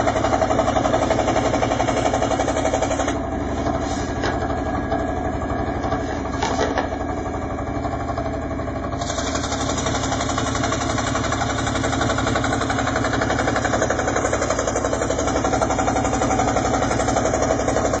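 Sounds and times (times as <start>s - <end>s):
scroll saw cutting wood: 0.0s - 4.3s, 9.0s - 18.0s.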